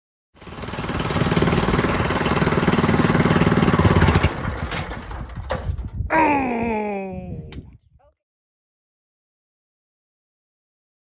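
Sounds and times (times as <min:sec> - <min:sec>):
small engine running: 0:00.4 - 0:05.5.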